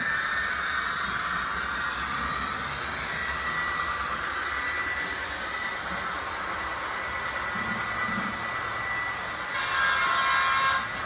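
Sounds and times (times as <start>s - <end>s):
model train motor whirring: 0.0s - 11.0s
thin steady whine: 0.0s - 11.0s.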